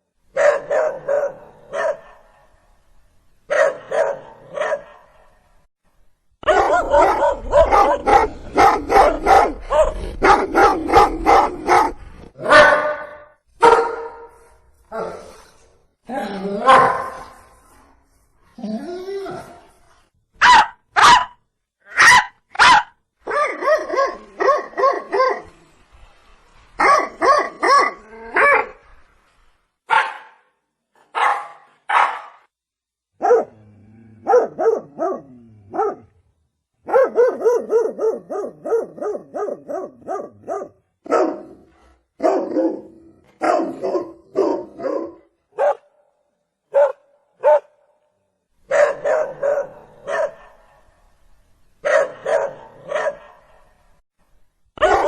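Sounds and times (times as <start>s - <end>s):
dog barking: 0.3s - 2.6s, 3.5s - 5.4s, 6.4s - 14.4s, 16.6s - 17.3s, 20.4s - 25.5s, 26.8s - 28.8s, 29.9s - 32.5s, 33.2s - 33.6s, 34.2s - 36.1s, 36.8s - 46.0s, 46.7s - 47.9s, 48.7s - 50.9s, 51.8s - 53.8s, 54.8s - 55.0s.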